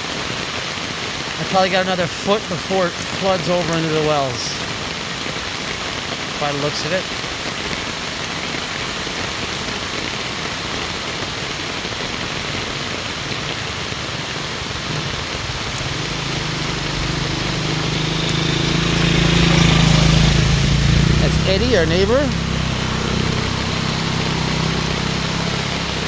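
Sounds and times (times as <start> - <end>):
heavy rain: 0.0 - 26.0
vehicle engine approaching: 13.2 - 26.0.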